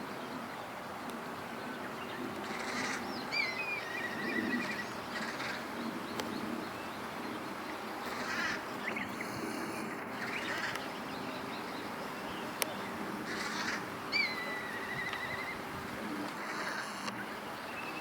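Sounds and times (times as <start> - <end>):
crows cawing: 2.4 - 3.0, 3.9 - 5.7, 8.0 - 8.6, 10.2 - 10.8, 13.2 - 15.6
kite whistling call with trill: 14.2 - 15.6.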